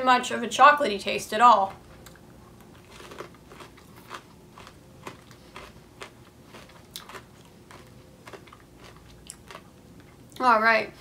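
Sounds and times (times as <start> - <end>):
person chewing hard popcorn: 1.7 - 10.4.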